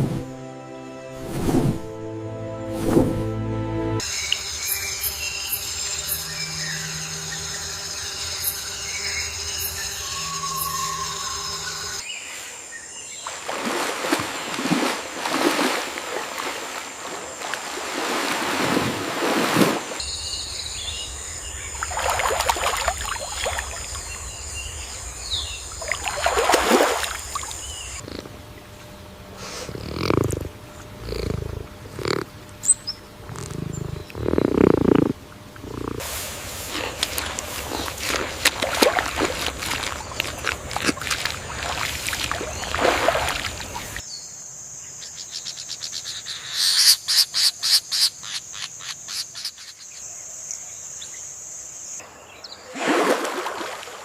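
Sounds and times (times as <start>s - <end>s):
large animal growling: 28.0s - 28.5s, 29.4s - 32.3s, 33.2s - 36.0s.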